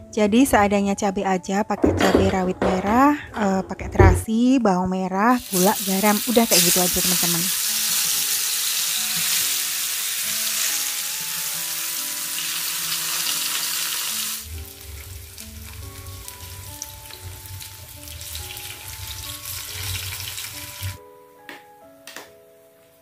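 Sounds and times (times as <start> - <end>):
background music: 0.0 - 23.0
food sizzling in oil: 5.3 - 21.0.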